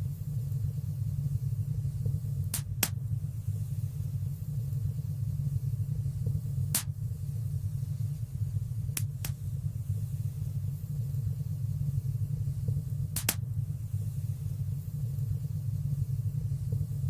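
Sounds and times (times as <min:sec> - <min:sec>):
low rumble of flames: 0:00.0 - 0:17.0
fire crackling pops: 0:01.8 - 0:03.6, 0:05.9 - 0:11.4, 0:12.0 - 0:14.1.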